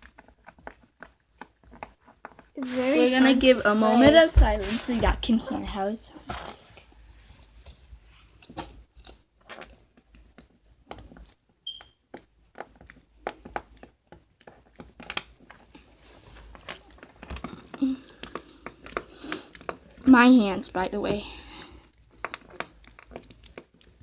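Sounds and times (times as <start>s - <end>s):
slime being squished: 21.5s - 24.0s.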